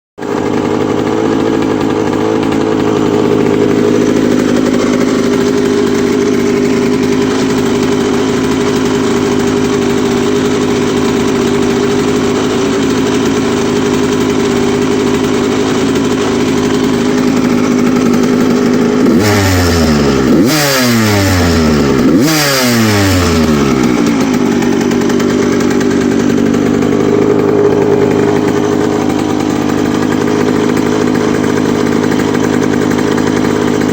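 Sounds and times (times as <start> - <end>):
two-stroke engine idling: 0.2 - 33.9
engine revs blipped: 19.0 - 24.6.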